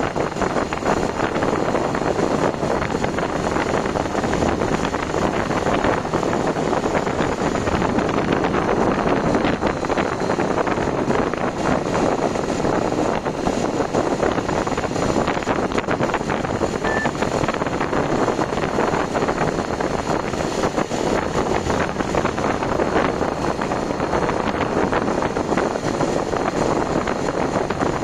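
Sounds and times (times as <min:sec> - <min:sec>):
vehicle running noise: 0:00.0 - 0:28.0
wind buffeting microphone: 0:00.0 - 0:28.0.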